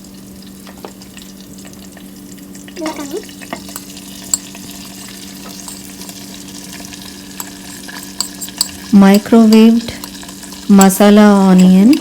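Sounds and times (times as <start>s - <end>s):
food sizzling in oil: 0.0s - 12.0s
low electrical hum: 0.0s - 12.0s.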